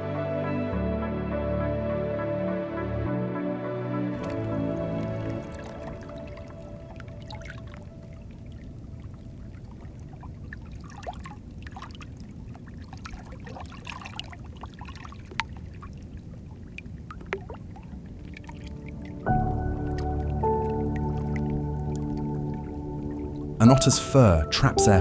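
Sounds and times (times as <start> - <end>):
small water splashes: 4.2 - 23.5
sea water lapping and trickling: 4.2 - 23.6.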